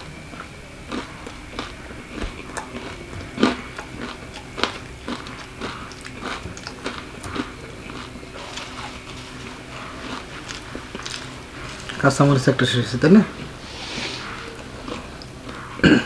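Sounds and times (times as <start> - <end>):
mouth clicks: 0.0 - 12.1
person chewing crunchy food: 0.0 - 16.0.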